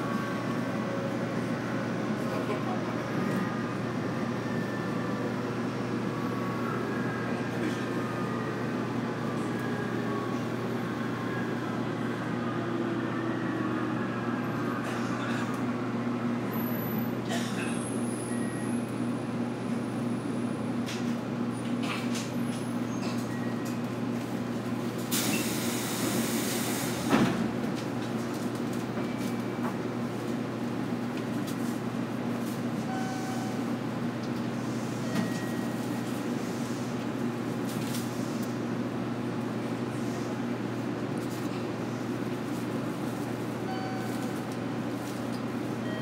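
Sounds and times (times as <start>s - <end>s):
train doors thumping open: 25.1s - 27.8s.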